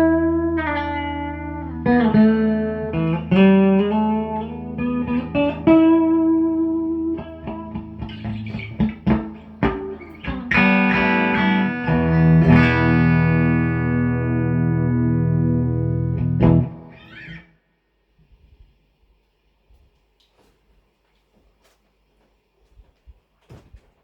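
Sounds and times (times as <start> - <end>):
electric guitar playing: 0.0 - 17.5.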